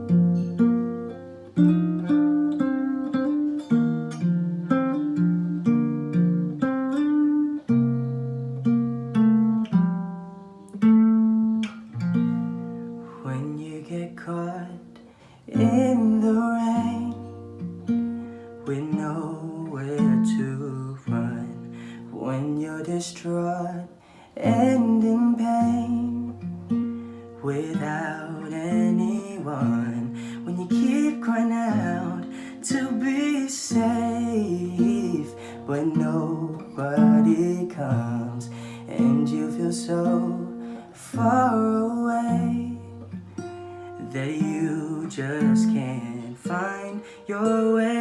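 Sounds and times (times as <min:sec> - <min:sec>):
acoustic guitar chords plucked: 0:00.0 - 0:48.0
person singing: 0:13.0 - 0:14.9, 0:15.5 - 0:17.4, 0:18.6 - 0:26.6, 0:27.4 - 0:43.2, 0:43.8 - 0:48.0.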